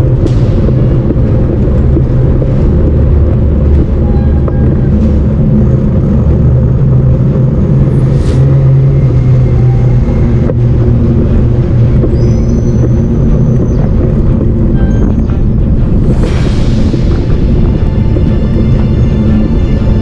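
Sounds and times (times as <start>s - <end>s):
bike tyres humming on pavement: 0.0s - 20.0s.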